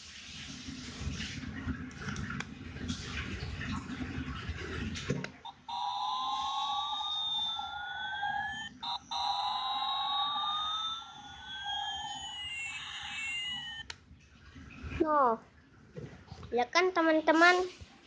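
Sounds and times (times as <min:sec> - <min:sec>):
steady electronic tone: 0:05.5 - 0:13.9
toy airplane electronic sound: 0:05.5 - 0:13.9
siren-like whistles gliding: 0:05.6 - 0:13.8.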